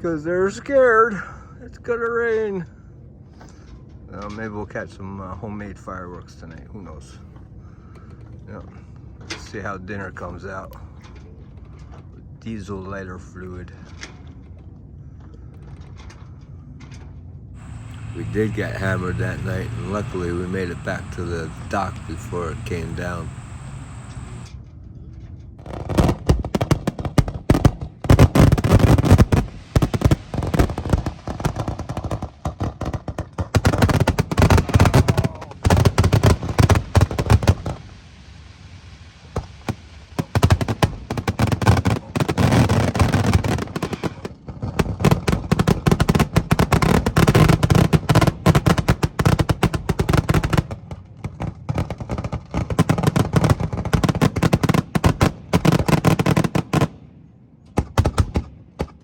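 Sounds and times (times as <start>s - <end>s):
fireworks popping and crackling: 17.6s - 24.5s, 25.6s - 57.0s.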